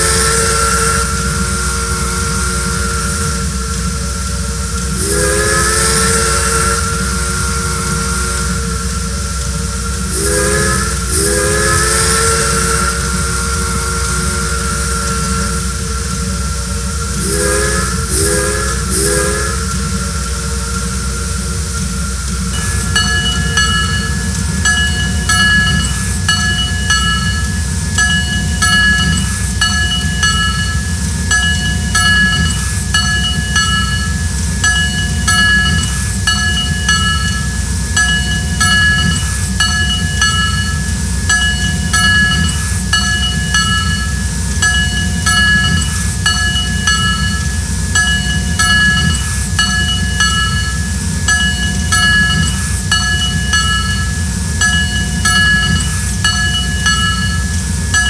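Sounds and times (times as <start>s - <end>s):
train rumbling on track: 0.0s - 58.0s
high ringing tones: 22.6s - 58.0s.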